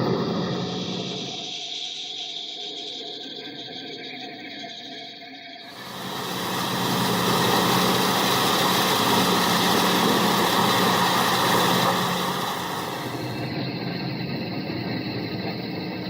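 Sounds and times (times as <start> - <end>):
heavy machine engine running: 5.7 - 13.5.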